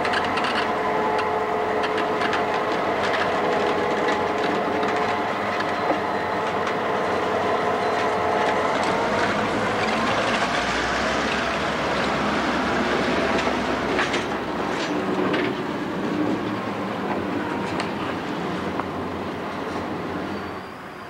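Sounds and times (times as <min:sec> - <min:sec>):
wheels clicking and knocking: 0:00.0 - 0:06.8
diesel locomotive drone: 0:00.0 - 0:21.0.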